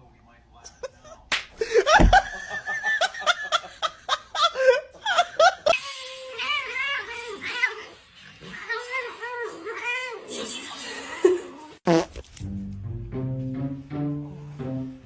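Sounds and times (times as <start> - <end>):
person laughing hard: 1.6 - 5.7.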